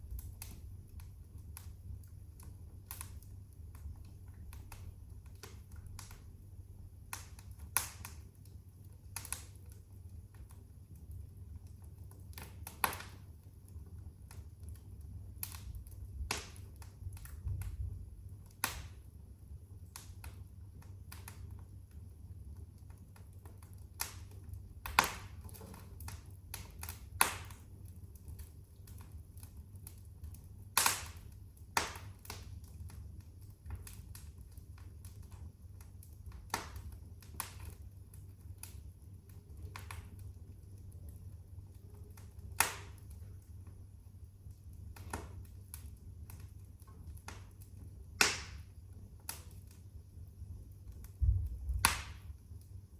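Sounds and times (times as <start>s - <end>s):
fire crackling and popping: 0.0s - 52.9s
low fire rumble: 0.0s - 52.9s.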